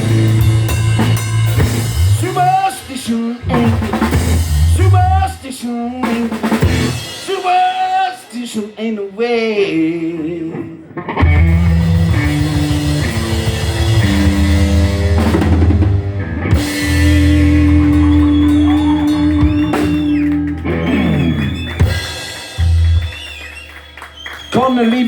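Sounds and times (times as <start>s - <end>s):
drum fill: 0.0s - 5.3s, 11.2s - 23.2s
rock band playing instrumental: 0.0s - 5.3s, 6.0s - 7.8s, 11.0s - 24.4s.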